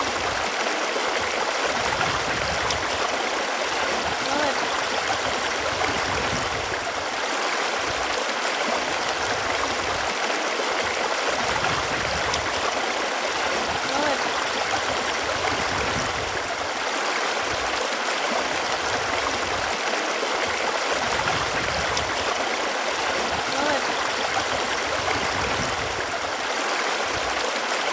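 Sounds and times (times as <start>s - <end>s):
running water rushing: 0.0s - 27.9s
water gurgles: 0.0s - 27.9s.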